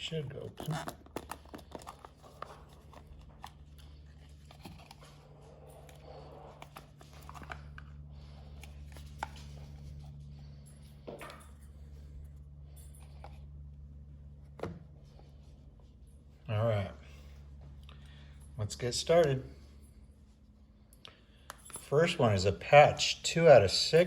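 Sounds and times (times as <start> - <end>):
steady low hum: 0.0 - 24.0
packaging rustling: 0.2 - 9.6.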